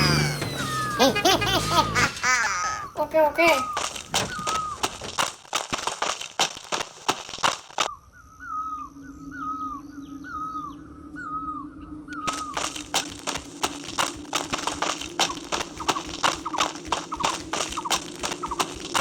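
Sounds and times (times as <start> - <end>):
rapid clicks and knocks: 3.7 - 7.9, 12.3 - 19.0.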